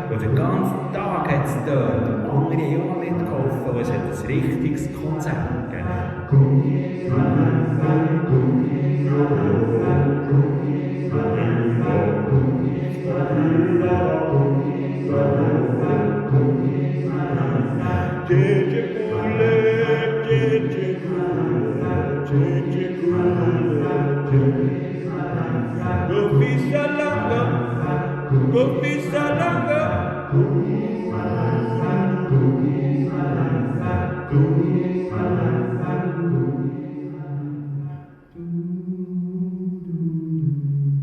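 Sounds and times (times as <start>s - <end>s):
group singing chant-like song: 0.0s - 40.6s
steady low beat: 23.2s - 34.8s.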